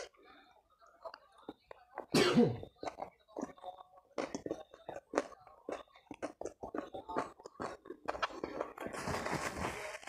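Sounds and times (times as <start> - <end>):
wet chewing and smacking: 1.1 - 8.9.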